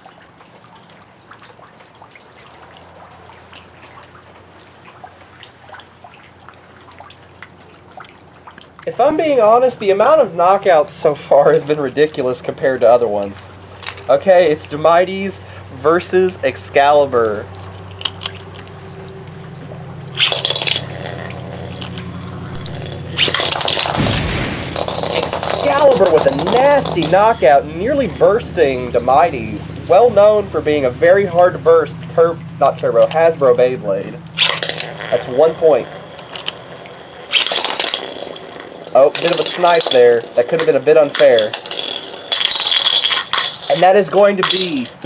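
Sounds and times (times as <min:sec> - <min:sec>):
rain drops dripping: 0:00.0 - 0:45.0
trickle of water: 0:00.0 - 0:45.0
low hum: 0:08.7 - 0:45.0
spinning tops clashing: 0:20.2 - 0:21.0, 0:22.5 - 0:27.4, 0:34.4 - 0:45.0
spinning tops launching: 0:20.2 - 0:21.0, 0:22.5 - 0:27.4, 0:34.4 - 0:44.9
spinning tops whirring: 0:20.2 - 0:21.9, 0:22.5 - 0:30.1, 0:34.3 - 0:45.0.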